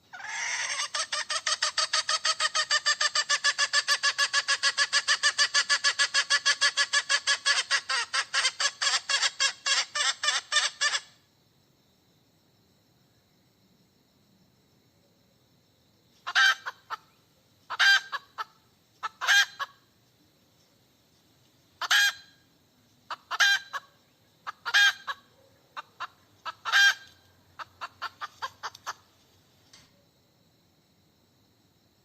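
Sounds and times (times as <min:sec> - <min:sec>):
hen cackling and clucking: 0:00.1 - 0:11.2, 0:16.2 - 0:19.8, 0:21.8 - 0:22.4, 0:23.1 - 0:29.1.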